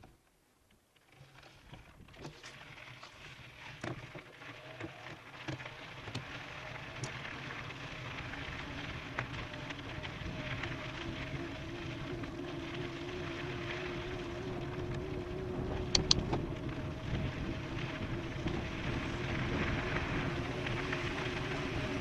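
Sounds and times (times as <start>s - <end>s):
bike tyres crunching over gravel: 1.2s - 22.0s
bike clicks and knocks: 15.9s - 16.5s.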